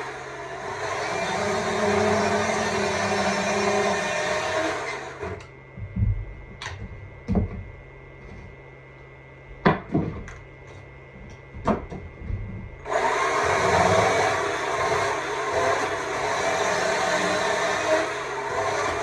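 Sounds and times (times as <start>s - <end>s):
sharp knocks and clicks: 5.4s - 7.7s, 11.2s - 12.9s
battery chainsaw running: 12.8s - 19.0s.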